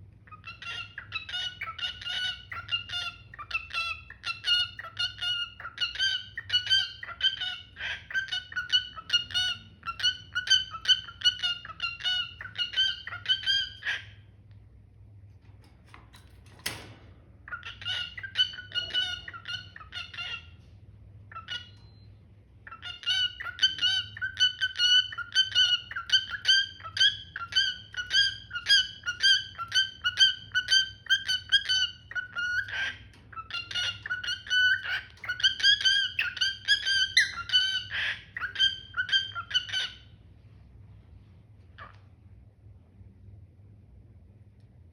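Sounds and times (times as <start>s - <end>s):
cockatiel chirping: 0.2s - 14.2s, 17.5s - 20.7s, 21.3s - 40.1s.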